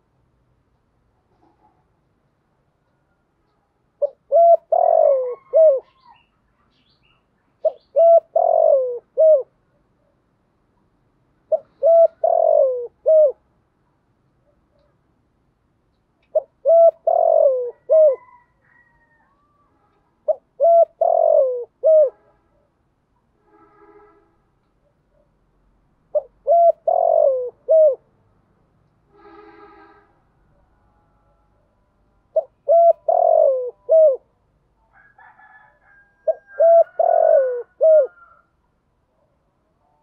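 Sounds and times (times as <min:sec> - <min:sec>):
dove cooing: 0:04.0 - 0:06.3, 0:07.6 - 0:09.5, 0:11.5 - 0:13.4, 0:16.3 - 0:19.2, 0:20.2 - 0:22.3, 0:26.1 - 0:28.1, 0:32.3 - 0:34.3, 0:35.2 - 0:38.5.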